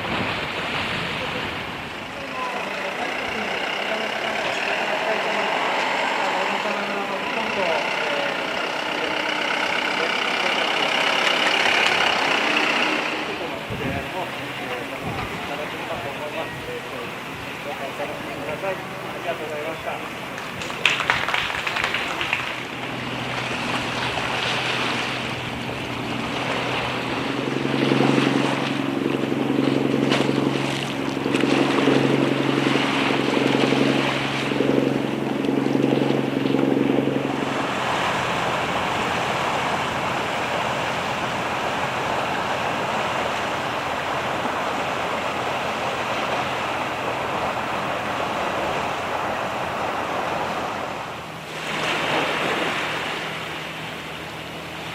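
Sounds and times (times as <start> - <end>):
low multi-pitched hum: 0.0 - 54.9
sea waves washing: 0.0 - 54.9
wind noise on microphone: 13.6 - 18.4, 20.0 - 40.1.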